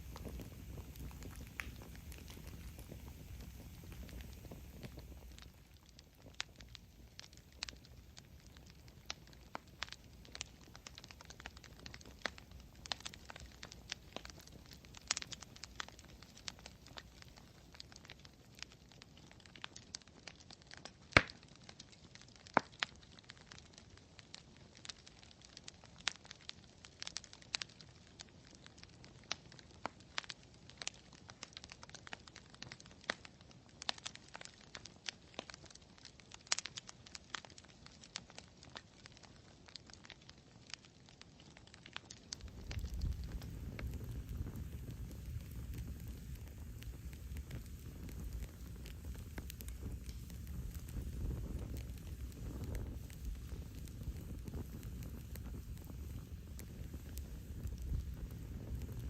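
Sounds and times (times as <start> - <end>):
low steady hiss: 0.0 - 20.2, 40.4 - 59.0
campfire crackling: 0.0 - 59.0.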